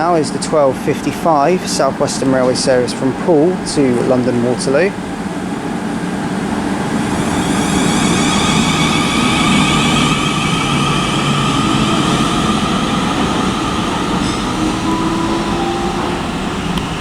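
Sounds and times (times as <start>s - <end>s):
train rumble: 0.0s - 17.0s
traction motors whining: 6.6s - 17.0s.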